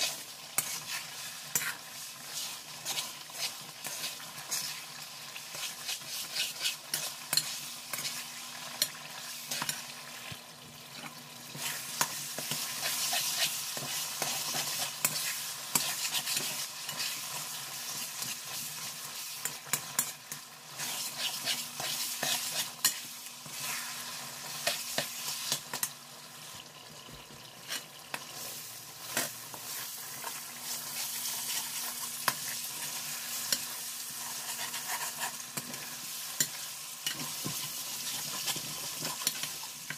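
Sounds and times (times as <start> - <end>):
spatula scraping and tapping pan: 0.0 - 10.4, 11.5 - 25.9, 27.6 - 39.9
food sizzling in oil: 0.0 - 39.9.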